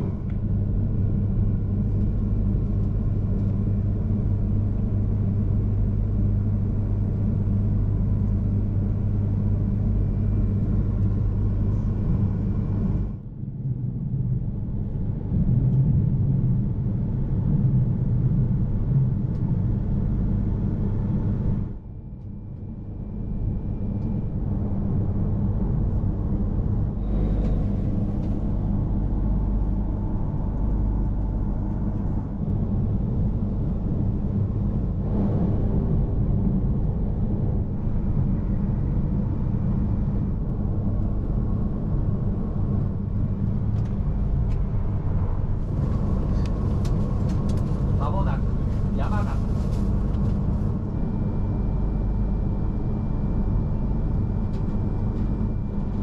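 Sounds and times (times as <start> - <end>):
train running at speed: 22.6 - 56.0.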